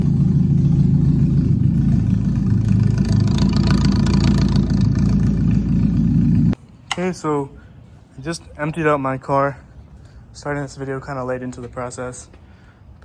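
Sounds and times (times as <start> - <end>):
car engine running: 0.0 - 6.6.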